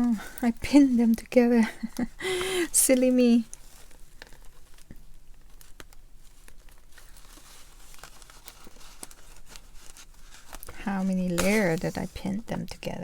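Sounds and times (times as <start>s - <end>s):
paper rustling and crinkling: 2.8s - 13.0s.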